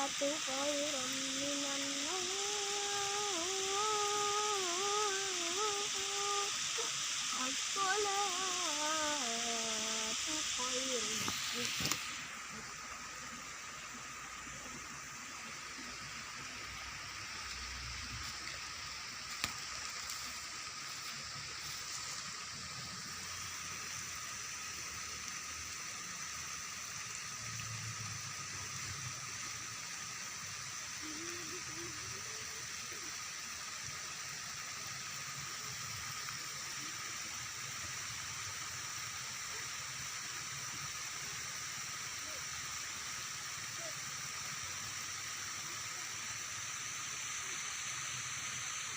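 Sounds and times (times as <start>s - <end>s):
high-pitched drone: 0.0s - 12.8s
rushing water: 0.0s - 48.9s.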